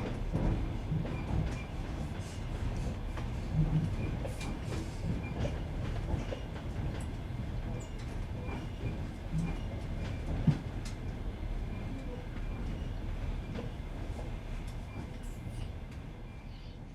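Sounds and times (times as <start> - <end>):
train carriage rumbling: 0.0 - 16.9.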